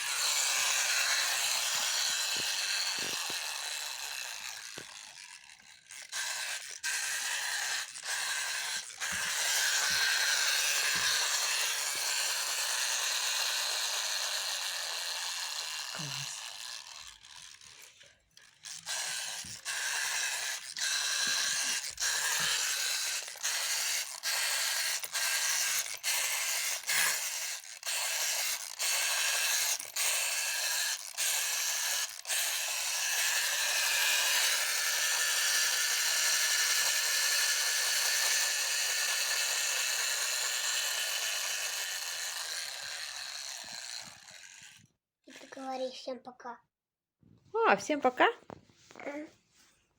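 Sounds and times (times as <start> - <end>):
toy washing machine motor whirring: 0.0 - 46.2.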